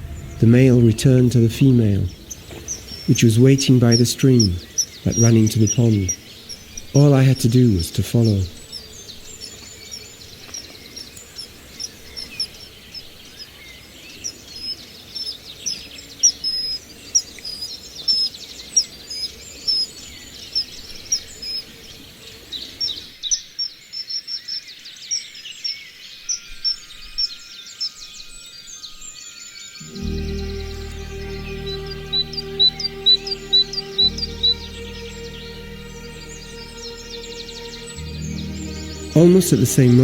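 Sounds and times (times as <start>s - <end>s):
low background hiss: 0.0s - 13.2s, 29.8s - 40.0s
small birds chirping: 0.0s - 40.0s.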